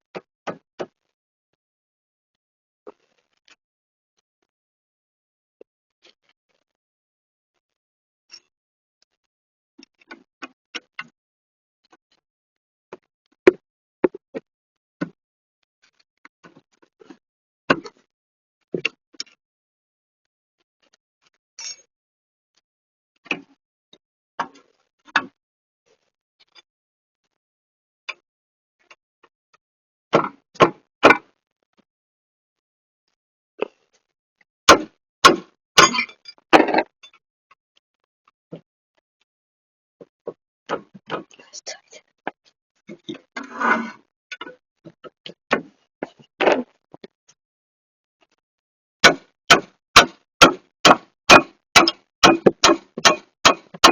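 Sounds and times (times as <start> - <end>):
hammer striking metal: 34.7 - 36.2, 49.0 - 53.9
tools clicking and knocking: 34.7 - 36.9, 49.0 - 53.9.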